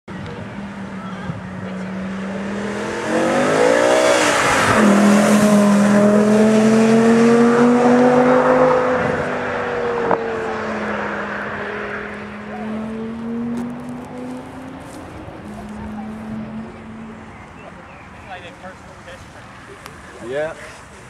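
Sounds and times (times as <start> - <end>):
car engine accelerating past: 1.8 - 17.4.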